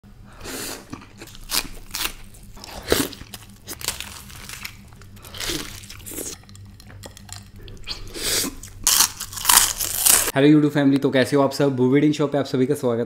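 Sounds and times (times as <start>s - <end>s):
crunching bites and wet chewing: 0.7s - 10.3s.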